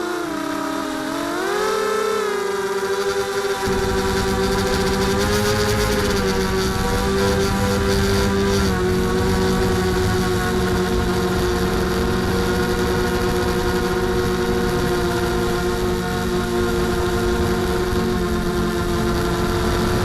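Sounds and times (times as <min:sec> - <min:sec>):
quadcopter motors whining: 0:00.0 - 0:20.0
rushing air noise: 0:03.6 - 0:12.4.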